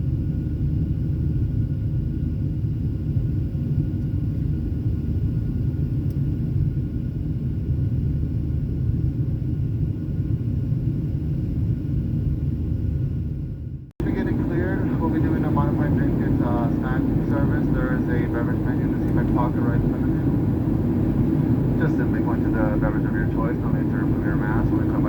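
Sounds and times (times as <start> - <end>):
airplane cabin rumble: 0.0 - 25.0
faint steady whine: 14.0 - 25.0.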